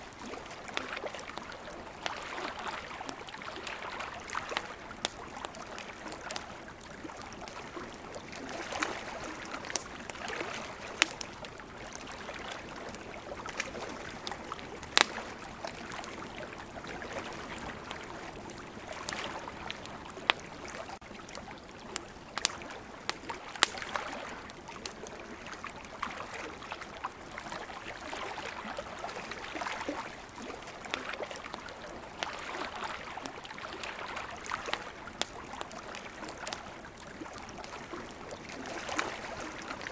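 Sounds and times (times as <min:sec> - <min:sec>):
ocean waves: 0:00.0 - 0:21.0, 0:21.8 - 0:39.9
campfire crackling: 0:00.0 - 0:39.9.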